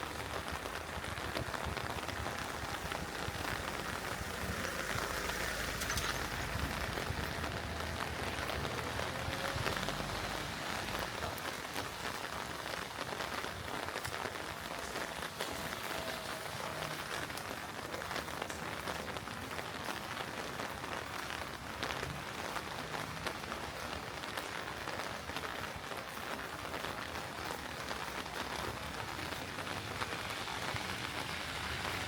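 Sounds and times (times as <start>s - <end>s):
heavy rain splashing: 0.0s - 32.0s
raindrops ticking close by: 0.0s - 32.0s.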